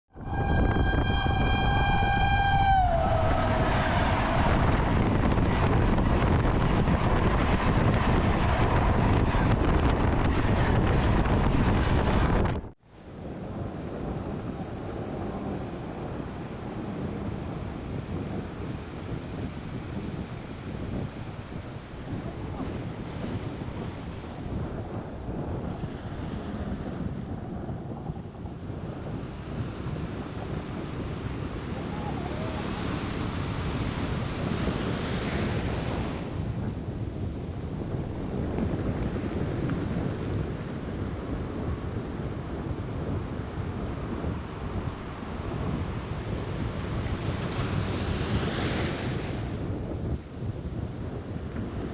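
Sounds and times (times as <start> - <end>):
locomotive air horn: 0.1 - 4.8
train rumbling: 0.1 - 12.8
wind buffeting microphone: 0.1 - 51.9
sea waves washing: 12.9 - 50.1.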